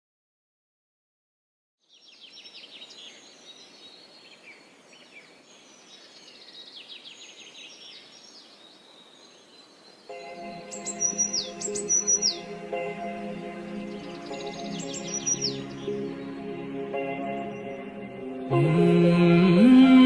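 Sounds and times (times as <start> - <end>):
small birds chirping: 1.8 - 18.5
soft ambient hiss: 1.9 - 20.0
music with sustained notes: 10.1 - 20.0.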